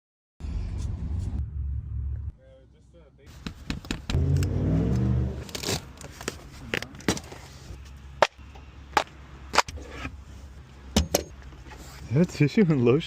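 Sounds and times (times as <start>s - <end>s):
sharp clicks and knocks: 3.4s - 4.5s.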